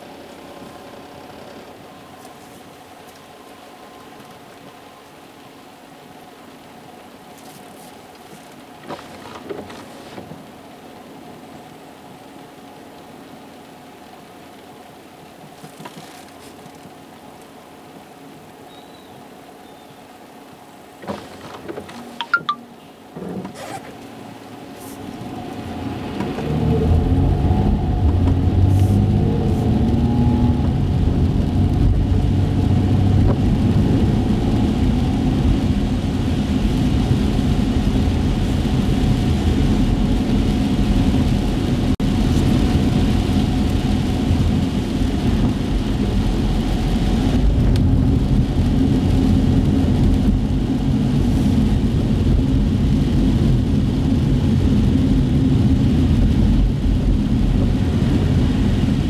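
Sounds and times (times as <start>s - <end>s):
car engine and road rumble: 20.2s - 59.0s
tyres hissing on wet pavement: 24.0s - 59.0s.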